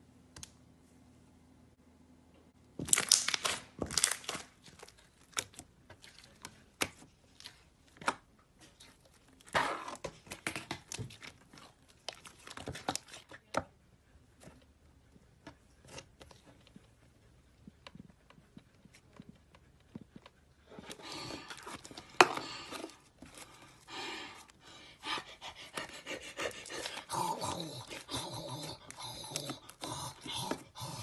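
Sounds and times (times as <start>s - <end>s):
slime crackling and popping: 2.8s - 6.2s.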